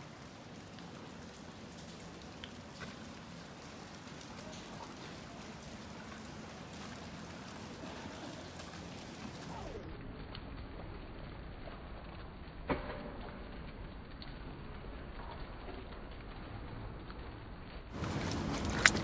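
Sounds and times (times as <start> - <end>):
wet snow pattering: 0.0 - 12.4, 17.9 - 19.0.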